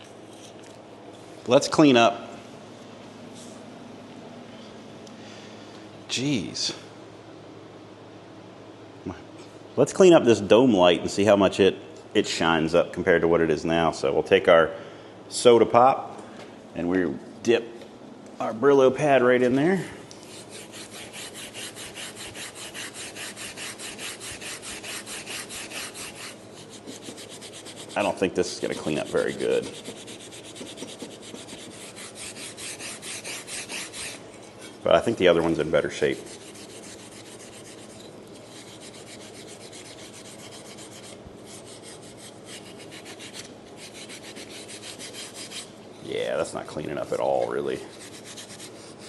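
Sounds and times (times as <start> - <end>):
steel wool pad scrubbing: 20.3 - 34.5.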